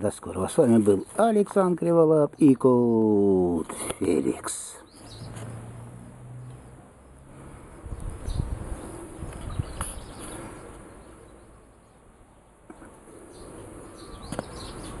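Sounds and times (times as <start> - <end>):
small birds chirping: 0.0 - 5.6, 7.8 - 15.0
low rumbling on microphone: 7.7 - 10.6.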